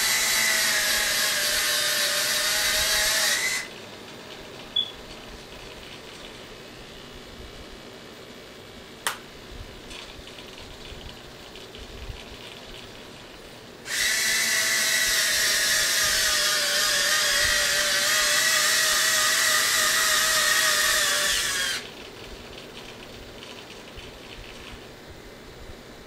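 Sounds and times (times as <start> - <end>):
electric motors whirring: 0.0 - 3.8, 13.9 - 24.8.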